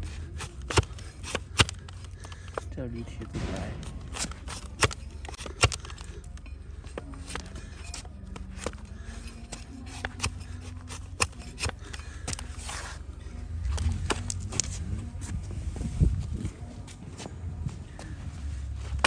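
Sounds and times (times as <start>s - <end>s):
knife paring hoof horn: 0.1s - 2.6s, 3.9s - 13.0s.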